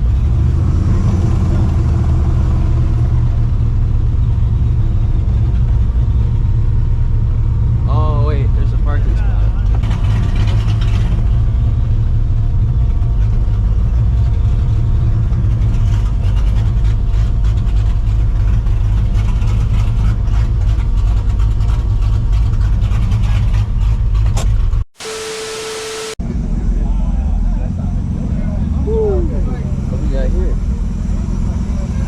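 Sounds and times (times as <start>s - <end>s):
deep engine exhaust rumble: 0.0s - 24.8s.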